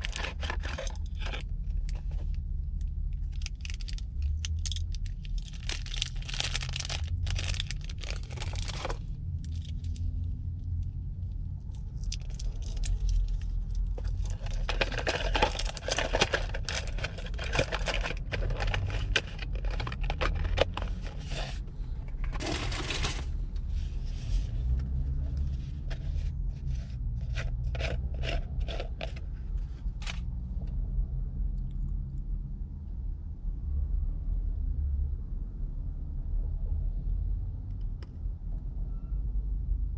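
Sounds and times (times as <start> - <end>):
hands scraping and crinkling material: 0.0 - 2.3, 12.1 - 30.2.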